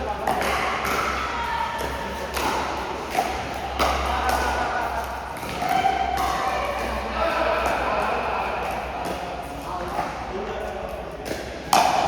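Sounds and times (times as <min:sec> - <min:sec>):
paddles hitting plastic ball: 0:01.8 - 0:04.6.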